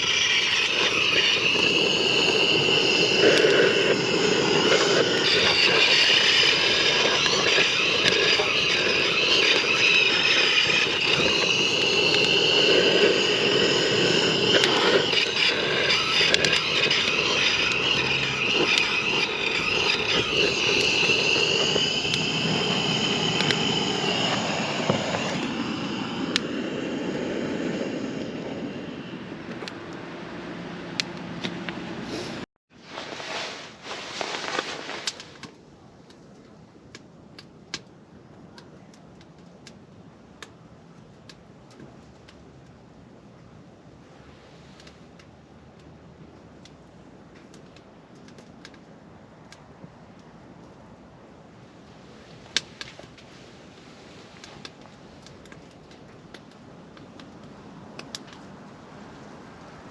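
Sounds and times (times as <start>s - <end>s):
aircraft engine drone: 0.0s - 32.0s.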